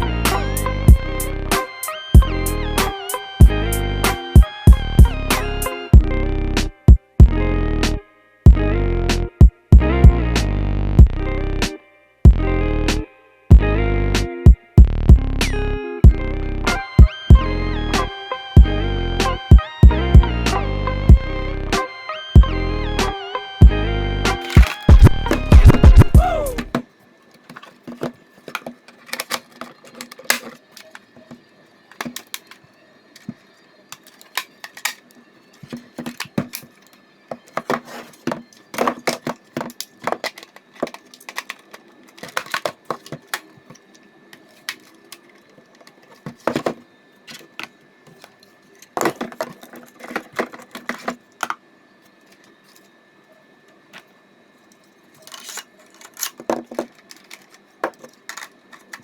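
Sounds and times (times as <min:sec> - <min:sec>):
hard plastic clicking and rattling: 0:24.4 - 0:51.6, 0:55.2 - 0:59.0.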